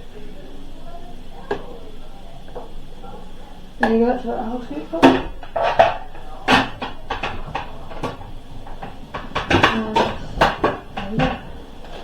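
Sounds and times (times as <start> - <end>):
plastic containers clicking and clattering: 3.8 - 12.0.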